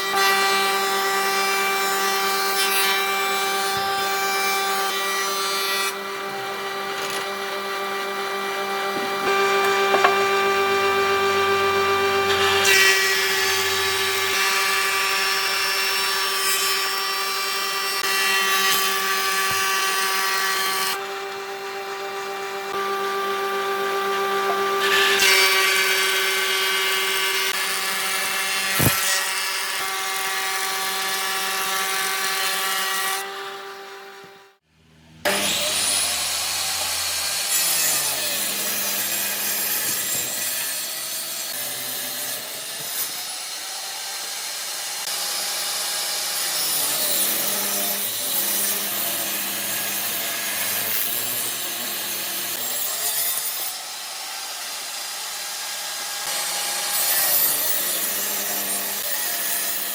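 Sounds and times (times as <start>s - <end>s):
power tool motor whining: 5.5s - 15.4s, 27.4s - 29.9s.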